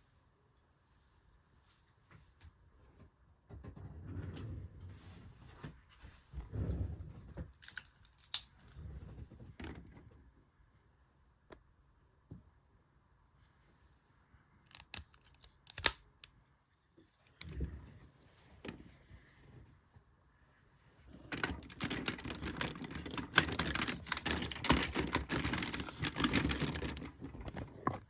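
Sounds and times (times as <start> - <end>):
plastic parts snapping clicks: 14.6 - 16.3
handling knocks and rustling: 21.1 - 28.0.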